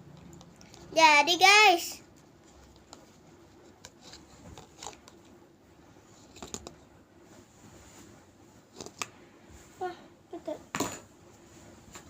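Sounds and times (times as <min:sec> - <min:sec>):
soft handling clicks and rustles: 0:02.1 - 0:05.4.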